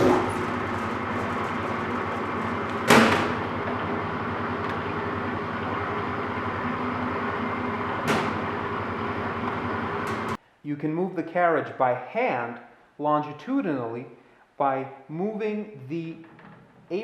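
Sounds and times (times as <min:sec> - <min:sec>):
sharp mechanical clunks: 0:00.0 - 0:03.9, 0:08.0 - 0:08.6
lathe running: 0:00.0 - 0:10.4.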